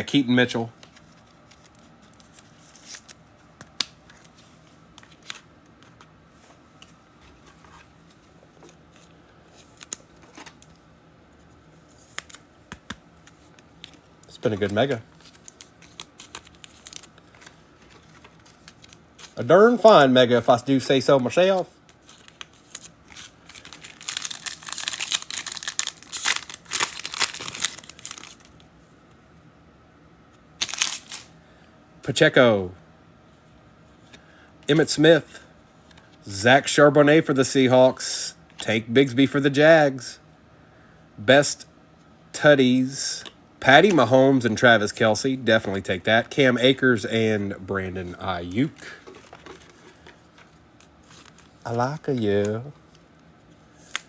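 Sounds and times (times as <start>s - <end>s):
cards and plastic sleeves rustling: 0.1s - 28.7s, 30.6s - 31.3s, 42.5s - 54.0s
foil wrapper crinkling and tearing: 14.6s - 19.4s, 22.0s - 28.6s, 30.6s - 31.3s.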